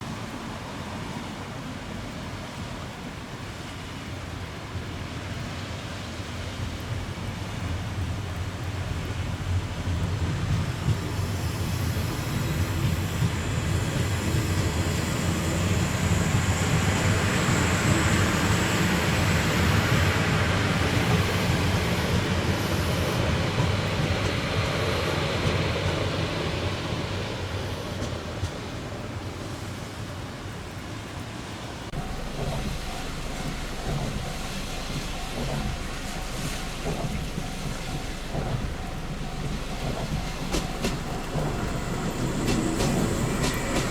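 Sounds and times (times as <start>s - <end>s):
train rumbling on rails: 0.0s - 43.9s
faint high whine: 32.0s - 43.9s.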